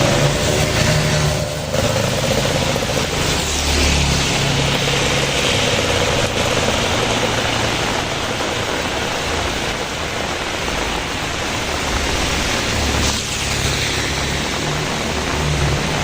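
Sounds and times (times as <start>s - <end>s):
heavy rain hissing: 0.0s - 16.0s.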